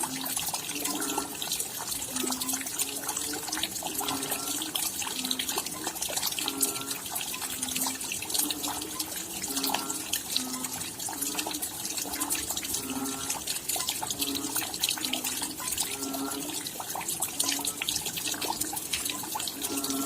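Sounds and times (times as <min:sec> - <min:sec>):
raindrops dripping: 0:00.0 - 0:20.0.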